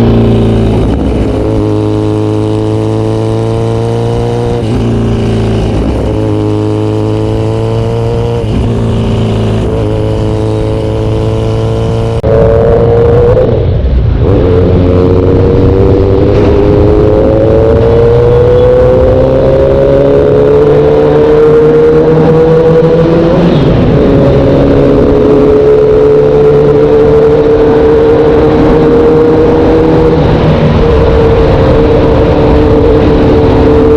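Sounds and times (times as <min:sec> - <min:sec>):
motorcycle engine running hard: 0:00.0 - 0:33.9.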